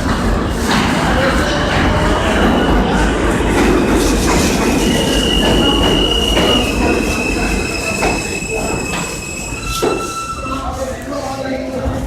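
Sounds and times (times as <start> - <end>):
subway car rumbling on track: 0.0 - 12.0
high-pitched wheel squeal: 4.8 - 11.0.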